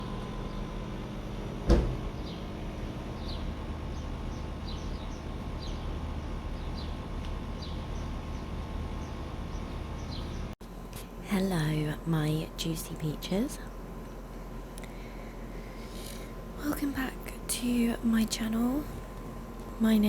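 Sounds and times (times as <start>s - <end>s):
steady low hum: 0.0s - 20.0s
small bird chirping: 3.2s - 7.0s, 7.6s - 10.6s.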